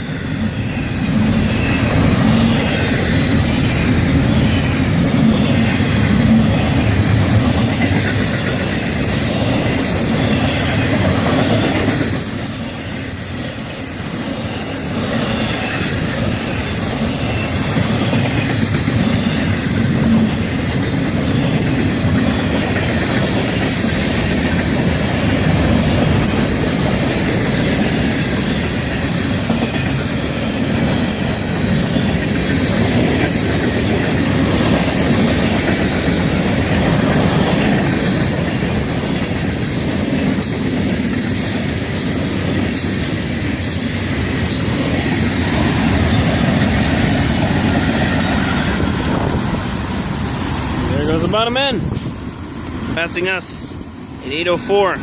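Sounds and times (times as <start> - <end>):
freight train wheels rumbling: 0.0 - 55.0
high wheel squeal: 0.5 - 5.9, 11.8 - 20.9, 45.5 - 54.4
clickety-clack over rail joints: 1.1 - 13.0, 14.8 - 49.8.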